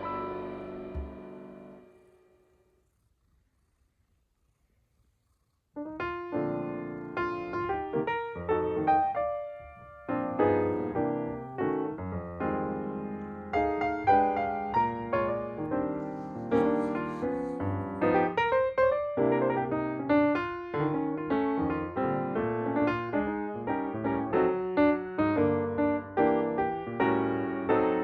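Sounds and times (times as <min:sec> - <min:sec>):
solo piano melody: 0:00.0 - 0:02.4, 0:05.8 - 0:28.0.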